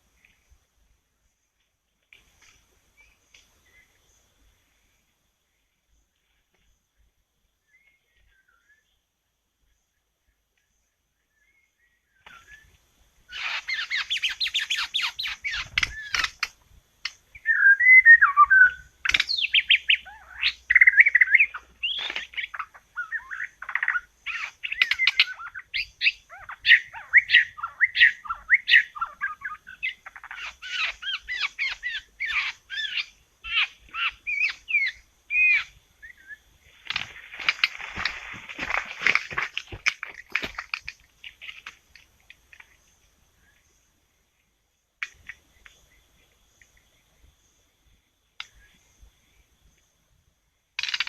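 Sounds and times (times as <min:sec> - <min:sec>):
bird song whistles and trills: 0:07.6 - 0:09.0, 0:11.2 - 0:37.7.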